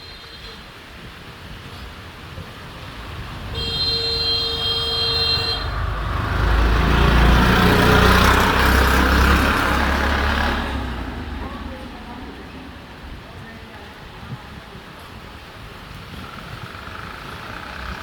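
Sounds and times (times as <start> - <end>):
motor vehicle passing: 1.9 - 14.1
vehicle horn: 3.0 - 6.4.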